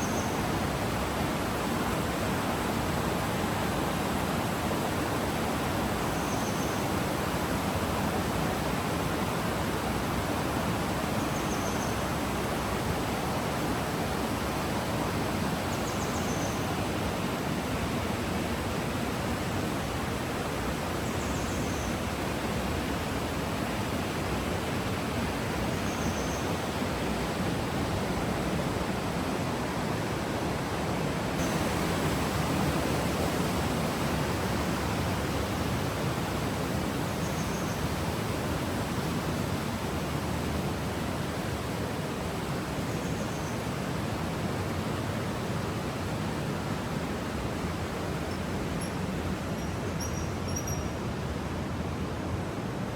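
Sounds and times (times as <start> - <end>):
stream water flowing: 0.0 - 52.9
faint high chirps: 49.6 - 51.0.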